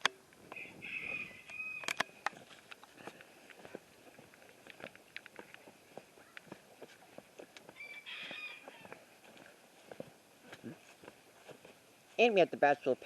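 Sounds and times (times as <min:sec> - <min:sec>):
chicken hoarse call: 0:00.6 - 0:01.9, 0:07.8 - 0:09.1
light ticks and scratches: 0:01.8 - 0:11.8.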